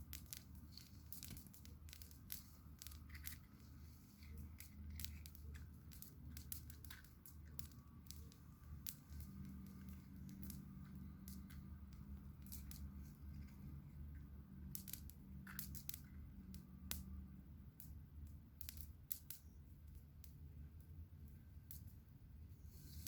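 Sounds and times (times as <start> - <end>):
campfire crackling: 0.0 - 17.2
faint low hum: 0.0 - 23.0.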